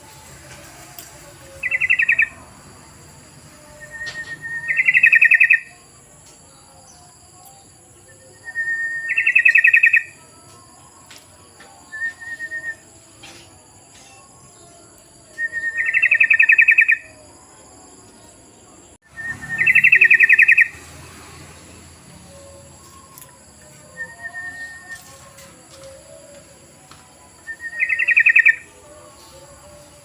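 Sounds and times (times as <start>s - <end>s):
bird chattering song: 1.5s - 2.4s, 3.8s - 5.8s, 8.6s - 10.2s, 15.5s - 17.2s, 19.2s - 20.8s, 27.5s - 28.7s.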